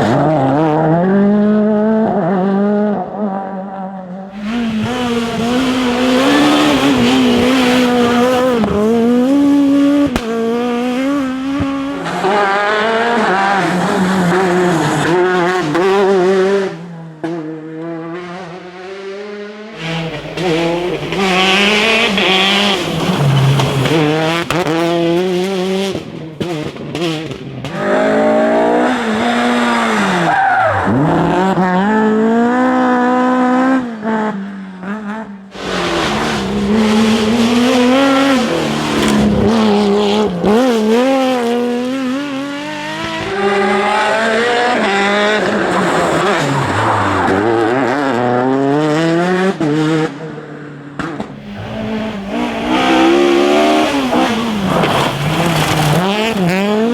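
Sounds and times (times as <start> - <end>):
rally car engines revving: 0.0 - 56.9
tyre squeal: 19.8 - 24.1.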